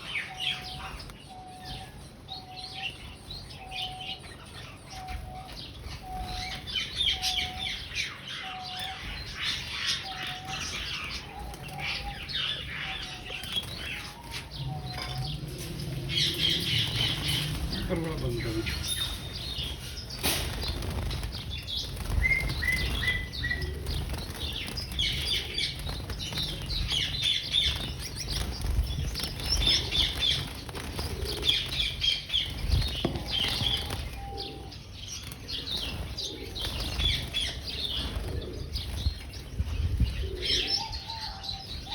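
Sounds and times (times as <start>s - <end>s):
wings fluttering: 13.2s - 34.2s.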